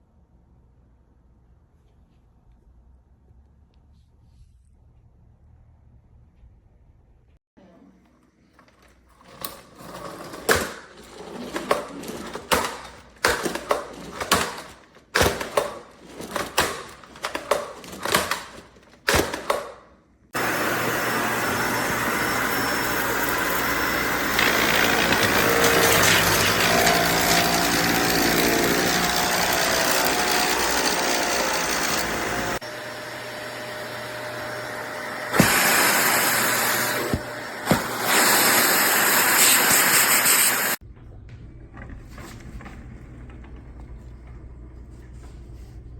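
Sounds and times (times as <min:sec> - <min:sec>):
vacuum cleaner running: 0:08.6 - 0:19.7, 0:20.4 - 0:40.8.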